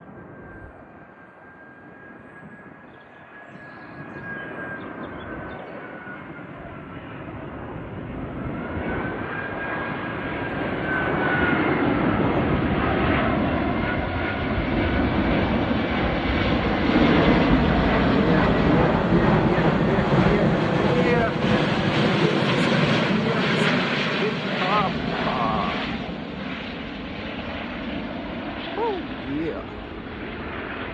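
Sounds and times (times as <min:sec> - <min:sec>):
jet engines rumbling and whining: 0:00.0 - 0:30.9.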